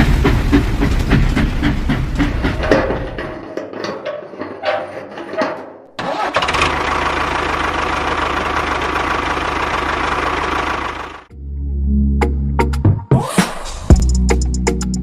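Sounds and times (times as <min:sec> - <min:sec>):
engine cranking and running: 0:00.0 - 0:11.3.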